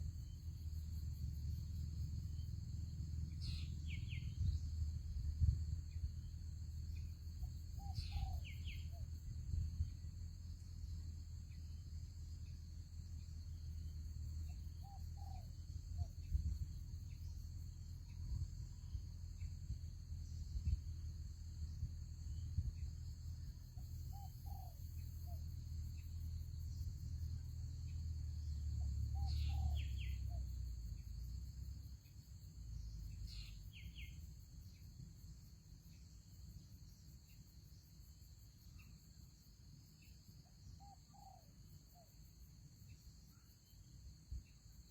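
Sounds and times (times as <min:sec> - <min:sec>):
high insect drone: 0:00.0 - 0:44.9
bird chirps: 0:03.3 - 0:09.9, 0:12.4 - 0:19.6, 0:22.7 - 0:25.4, 0:28.8 - 0:31.0, 0:32.8 - 0:34.2.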